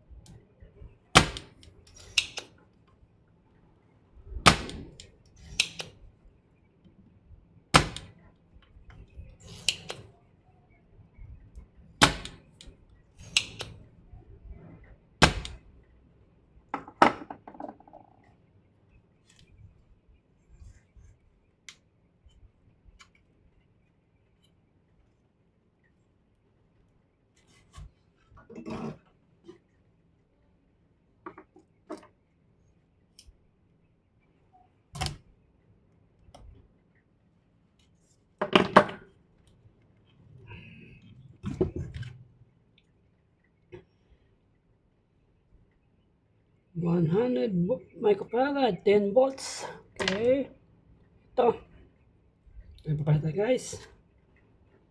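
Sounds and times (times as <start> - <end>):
clicks and knocks of tools: 1.4 - 2.6.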